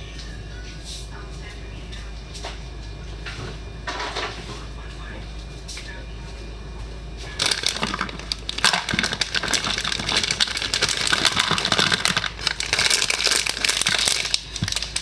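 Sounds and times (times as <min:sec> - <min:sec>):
plastic packaging crinkling: 0:07.4 - 0:15.0.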